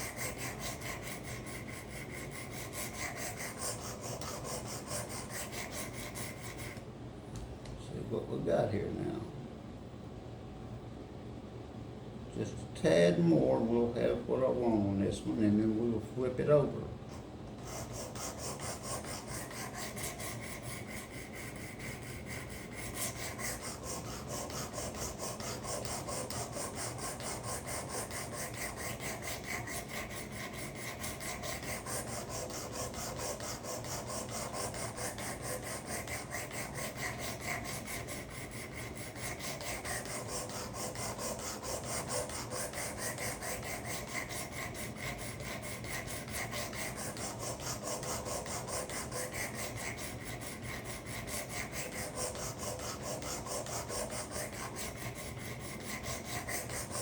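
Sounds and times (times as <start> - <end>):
blade scraping on sharpener: 0.0 - 6.8, 17.6 - 57.0.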